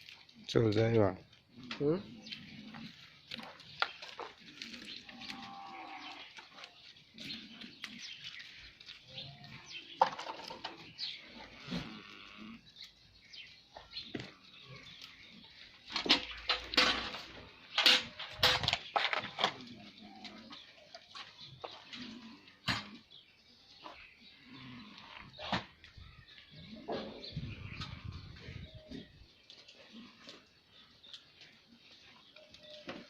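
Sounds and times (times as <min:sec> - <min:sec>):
knocks and clatter: 0:15.9 - 0:19.6.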